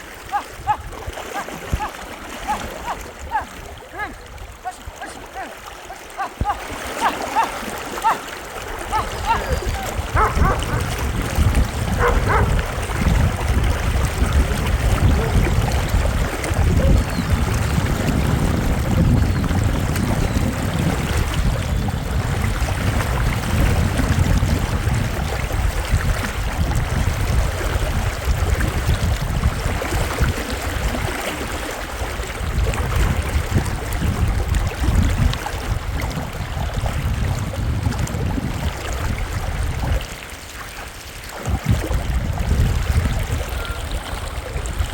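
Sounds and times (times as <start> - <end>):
river rushing: 0.0 - 18.8
low rumble under water: 8.6 - 31.1, 31.9 - 40.2, 41.2 - 44.9.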